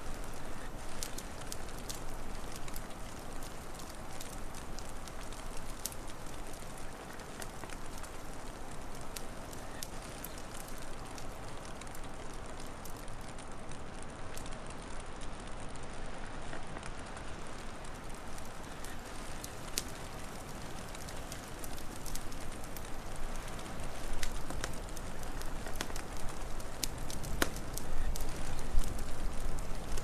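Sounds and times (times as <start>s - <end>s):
wood fire crackling and popping: 0.0s - 30.0s.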